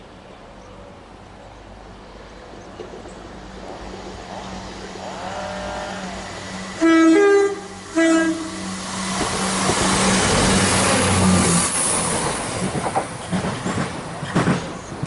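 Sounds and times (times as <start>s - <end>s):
train passing at speed: 0.0s - 15.0s
train horn blast: 5.0s - 10.1s
wheels clicking over rail joints: 12.3s - 15.0s.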